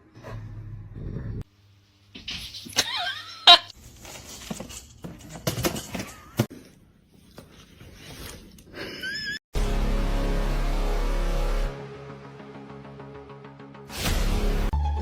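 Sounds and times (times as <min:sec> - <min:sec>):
rustling: 0:03.8 - 0:08.6.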